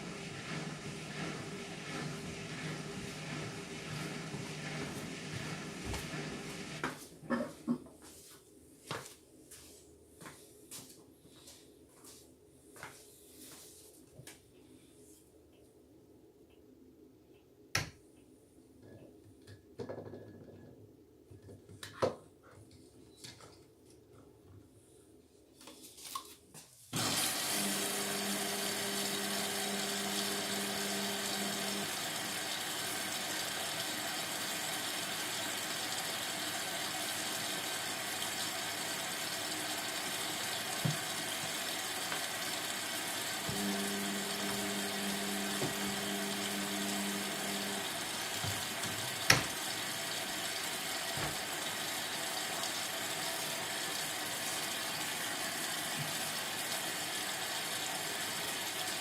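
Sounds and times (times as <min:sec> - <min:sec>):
water filling washing machine: 0:00.0 - 0:07.6, 0:26.9 - 0:59.0.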